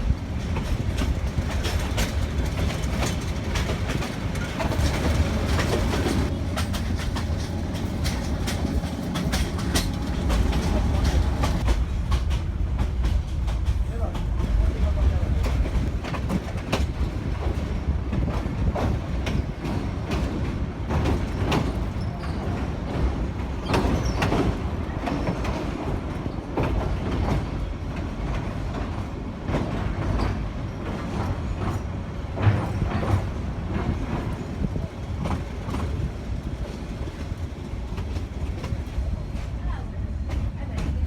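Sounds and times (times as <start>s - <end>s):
railway coach rumble: 0.0s - 41.0s
wheels clattering over rail joints: 0.1s - 39.6s.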